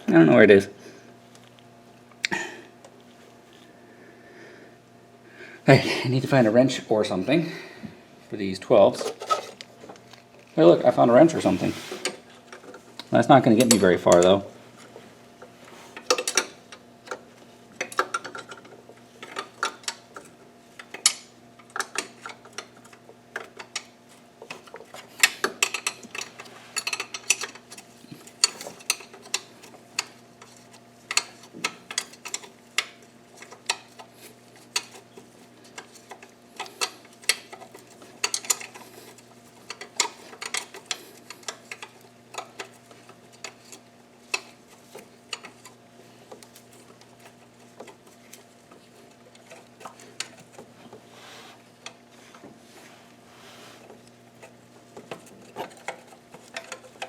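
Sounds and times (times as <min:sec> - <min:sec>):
faint steady hum: 0:00.0 - 0:57.0
wrench clicking on metal parts: 0:24.5 - 0:35.0, 0:35.6 - 0:44.6.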